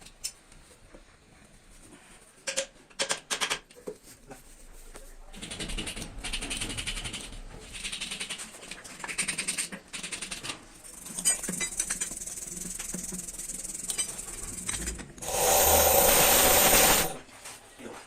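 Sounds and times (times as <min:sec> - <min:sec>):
power tool running: 0:15.2 - 0:17.2.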